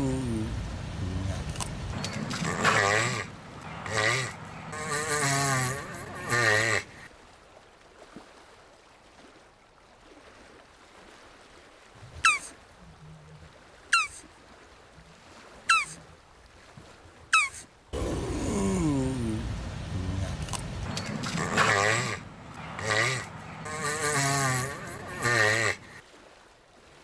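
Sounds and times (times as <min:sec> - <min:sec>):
tortoise groaning: 0:00.0 - 0:07.1, 0:17.4 - 0:26.0.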